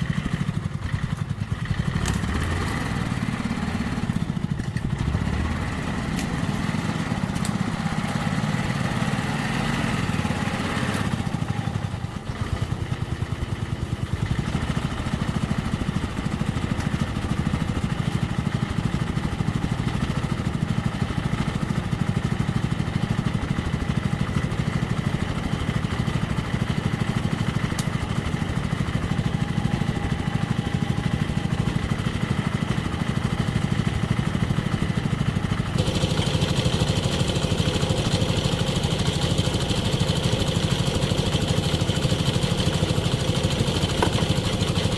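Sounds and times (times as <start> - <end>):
small engine running: 0.0 - 44.9.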